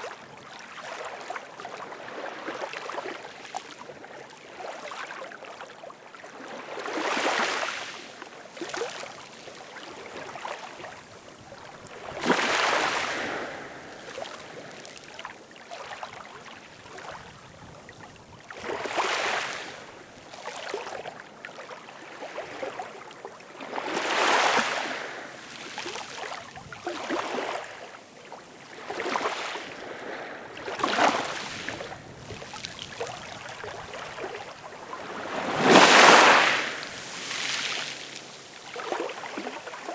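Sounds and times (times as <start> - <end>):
ocean waves breaking: 12.0 - 14.9, 28.6 - 39.9.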